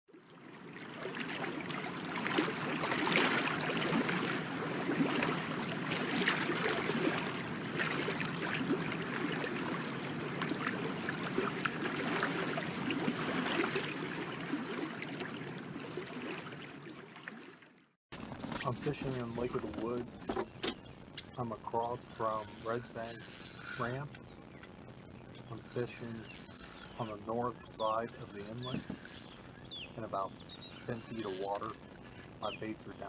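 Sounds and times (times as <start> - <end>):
small water splashes: 0.1 - 24.1, 25.1 - 33.0
water lapping and trickling: 0.1 - 33.0.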